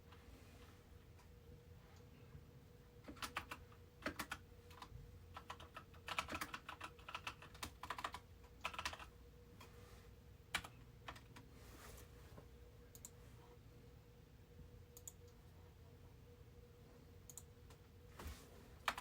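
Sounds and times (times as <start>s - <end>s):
faint steady hum: 0.0s - 19.0s
typing on keyboard: 3.0s - 9.1s, 10.5s - 11.5s, 18.8s - 19.0s.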